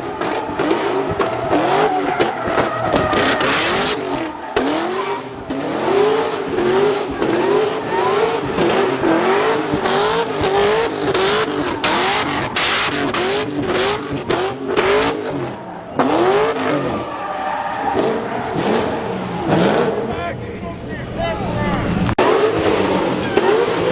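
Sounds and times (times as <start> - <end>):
car engine revving: 0.0 - 23.9
tyres squealing and skidding: 0.0 - 23.9.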